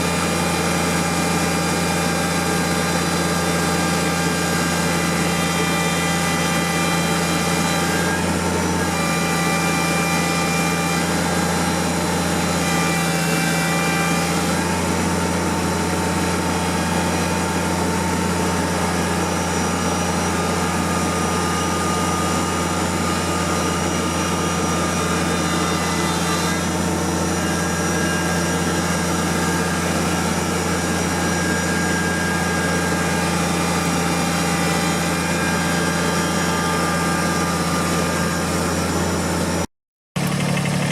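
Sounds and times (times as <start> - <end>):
tractor engine running: 40.2 - 40.9.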